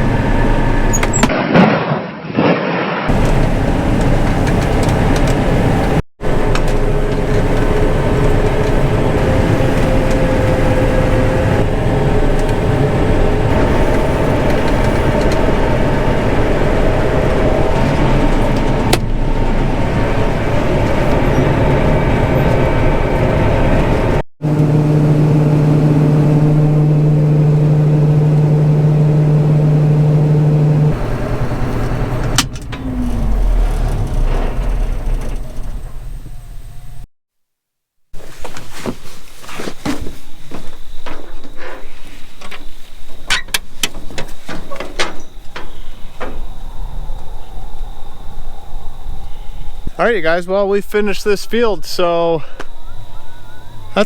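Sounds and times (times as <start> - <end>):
combine harvester engine drone: 0.0 - 1.4, 3.1 - 37.1, 39.9 - 54.0
strong steady low hum: 3.1 - 37.1.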